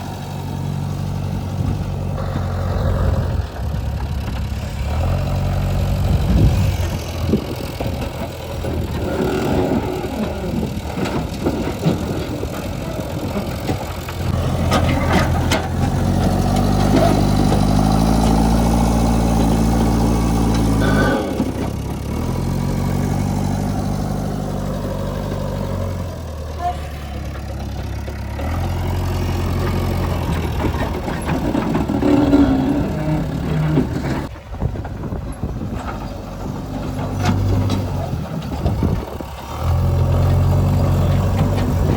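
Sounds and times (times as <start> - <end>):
heavy diesel engine revving: 0.0 - 34.3, 35.4 - 41.9.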